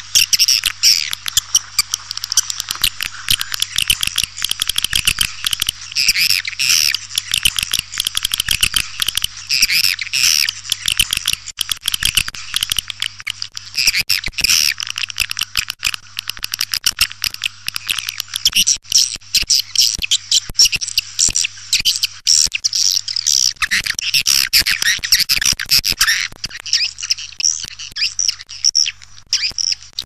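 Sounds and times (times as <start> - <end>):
rapid sharp clicks: 0.0 - 18.6.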